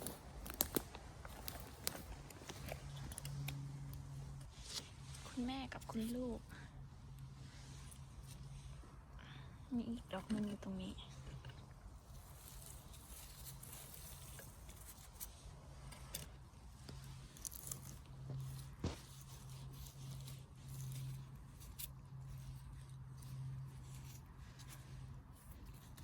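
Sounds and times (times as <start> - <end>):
small snaps of mushroom picking: 0.0 - 2.0
crunching of leaf litter: 0.0 - 3.6, 12.0 - 15.6, 16.8 - 26.0
low steady hum: 0.0 - 26.0.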